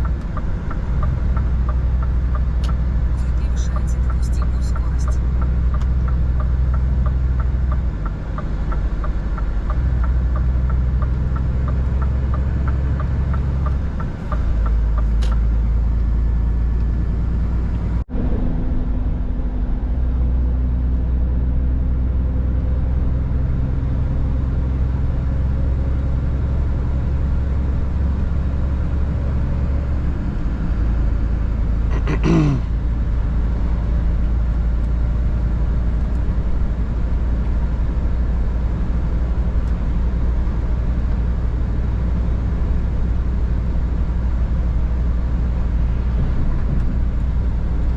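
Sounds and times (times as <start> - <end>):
light regular ticking: 0.0 - 15.5
truck diesel engine drone: 0.0 - 47.9.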